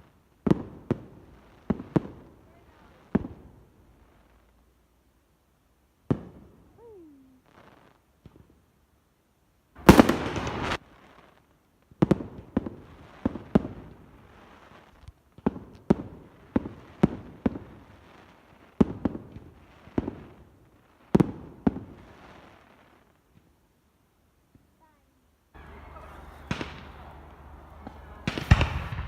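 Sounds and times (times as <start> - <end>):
firework rushing burst: 9.8 - 10.9
echoing firework bangs: 9.8 - 11.0, 18.8 - 20.5, 21.1 - 22.1, 25.6 - 29.0.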